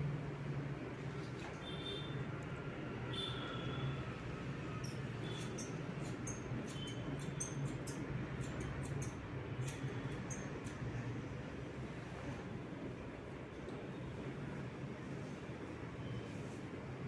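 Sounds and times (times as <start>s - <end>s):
scissors snipping hair: 4.8s - 11.0s.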